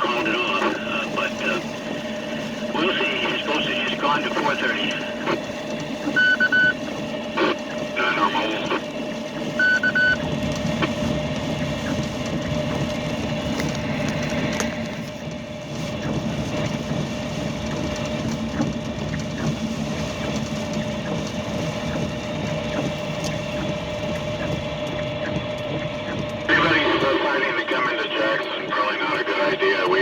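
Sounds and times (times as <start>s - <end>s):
double electronic beep: 6.1s - 6.8s, 9.6s - 10.2s.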